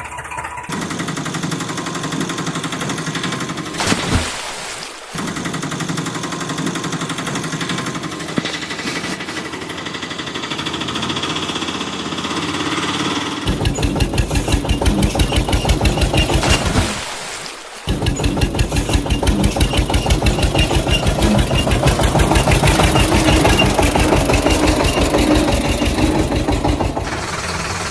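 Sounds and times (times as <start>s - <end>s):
engine running: 0.0s - 27.9s
loud even chugging: 12.7s - 27.9s.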